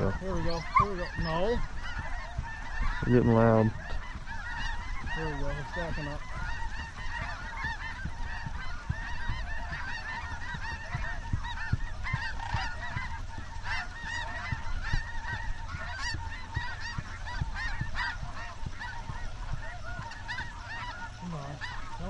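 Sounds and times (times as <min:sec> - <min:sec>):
flock of geese honking: 0:00.0 - 0:22.0.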